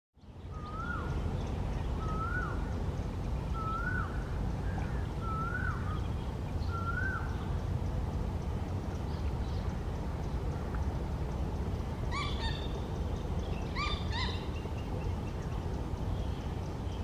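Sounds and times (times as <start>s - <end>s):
steady low rumble: 0.2s - 17.0s
bird whistled call: 0.5s - 1.2s, 2.0s - 2.6s, 3.5s - 6.0s, 6.6s - 7.4s, 12.1s - 12.9s, 13.6s - 14.9s.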